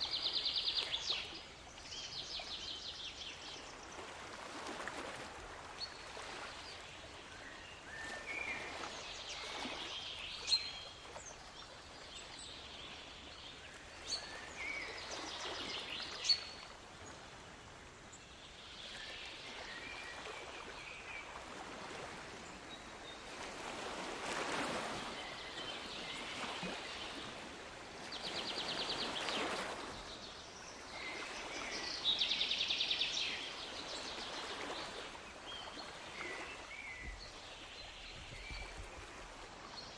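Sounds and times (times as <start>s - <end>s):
waves washing in: 18.7s - 39.9s.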